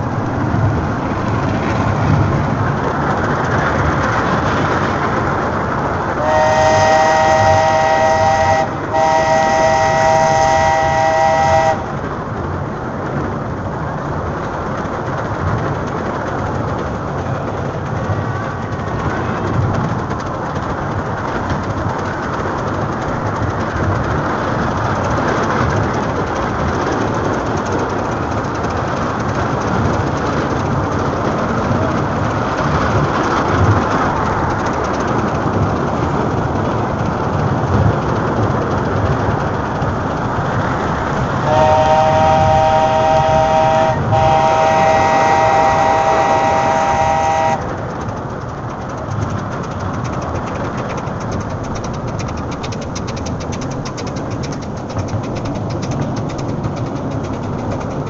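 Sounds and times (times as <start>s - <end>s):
steam train rumbling and rattling: 0.0s - 58.0s
steam train whistle: 6.2s - 11.9s, 41.4s - 47.7s.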